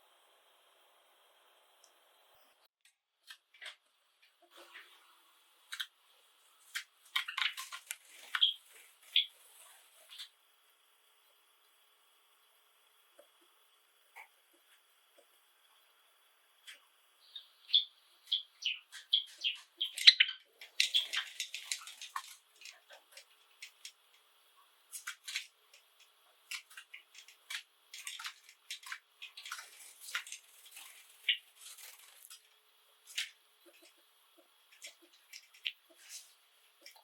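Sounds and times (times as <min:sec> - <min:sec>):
sparrows chirping: 0:07.2 - 0:09.3, 0:17.2 - 0:23.1, 0:28.0 - 0:32.3
scratchy bird song phrase: 0:17.2 - 0:21.9.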